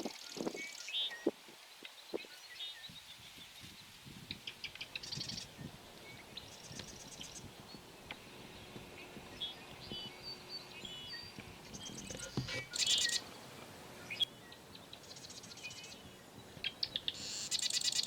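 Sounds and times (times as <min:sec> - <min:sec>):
songbird chirps and whistles: 0:09.3 - 0:13.2.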